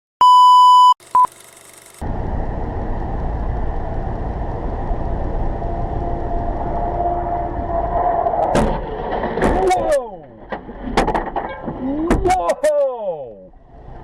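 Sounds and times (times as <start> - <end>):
short beep: 0.2 - 1.3
car driving rumble: 2.0 - 14.0.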